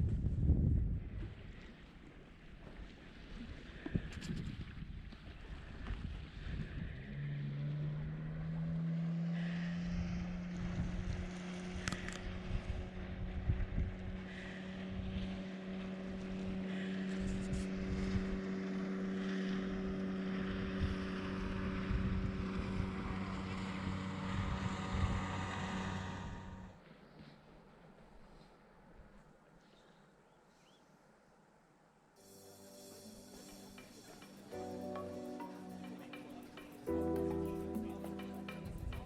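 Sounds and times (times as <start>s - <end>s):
wind buffeting microphone: 0.0s - 1.8s, 2.8s - 7.3s, 9.9s - 18.6s, 19.9s - 26.7s.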